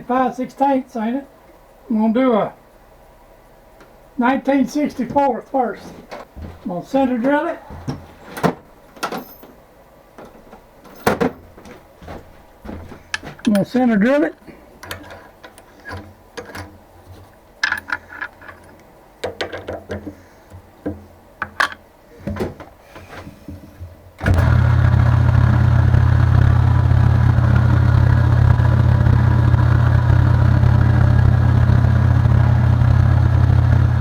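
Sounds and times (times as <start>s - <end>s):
tool handling clicks and knocks: 10.2s - 23.7s
drilling machine motor humming: 24.2s - 34.0s.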